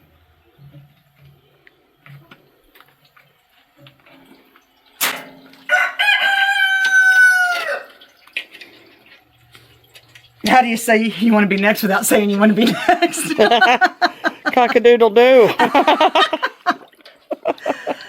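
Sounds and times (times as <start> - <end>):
rooster crowing: 5.7 - 8.1.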